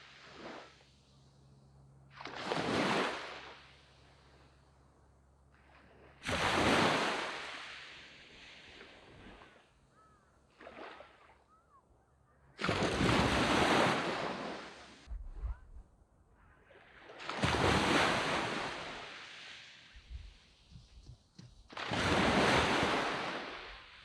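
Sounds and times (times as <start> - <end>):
sea waves crashing on beach: 0.0 - 1.0, 2.1 - 4.6, 5.7 - 9.8, 12.6 - 15.1, 16.7 - 20.8, 21.4 - 24.0
quiet surf hiss: 18.1 - 21.8.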